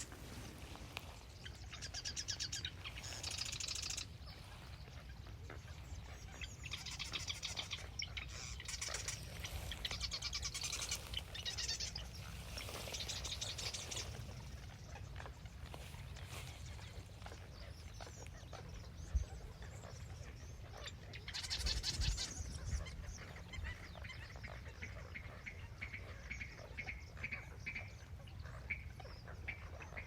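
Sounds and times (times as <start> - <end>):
woodpecker rattle calls: 1.4 - 4.4, 5.5 - 12.2, 17.5 - 30.0.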